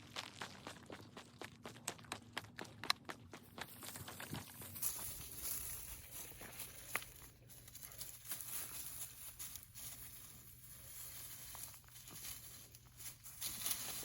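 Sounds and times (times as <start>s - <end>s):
faint footsteps: 0.0s - 14.0s
light rustling: 4.0s - 14.0s.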